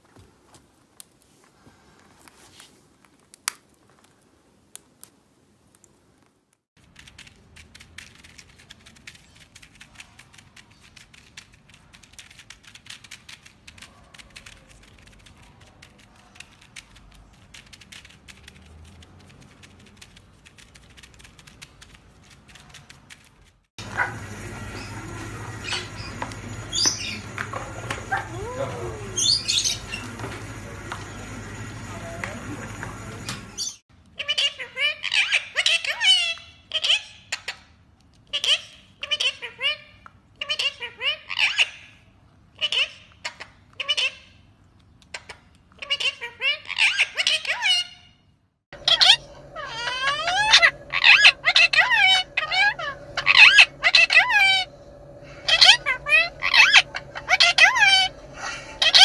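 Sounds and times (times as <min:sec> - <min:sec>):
parrot clicking and scratching: 0:06.8 - 0:28.3, 0:48.8 - 0:59.0
steady low hum: 0:23.8 - 0:33.6, 0:48.8 - 0:59.0
parrot chirps and whistling calls: 0:23.9 - 0:30.1, 0:33.5 - 0:37.6, 0:45.1 - 0:48.2, 0:48.8 - 0:59.0.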